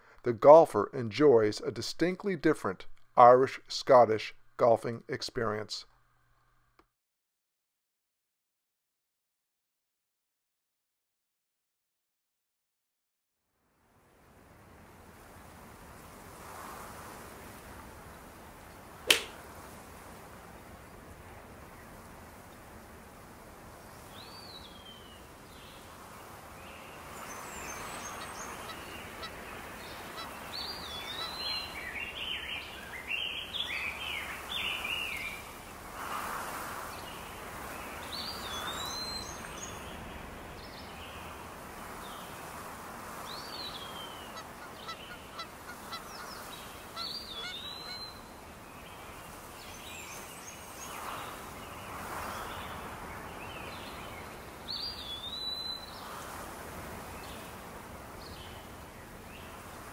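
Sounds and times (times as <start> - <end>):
steady outdoor hiss: 0.0 - 6.4, 13.6 - 59.9
birds calling: 26.6 - 35.6, 37.0 - 41.4, 43.3 - 51.4.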